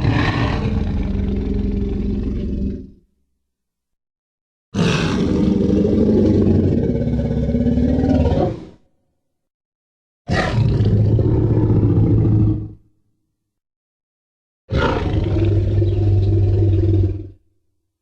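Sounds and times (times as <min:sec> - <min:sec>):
dinosaur roar: 0:00.0 - 0:03.0, 0:04.8 - 0:08.8, 0:10.3 - 0:12.8, 0:14.7 - 0:17.4.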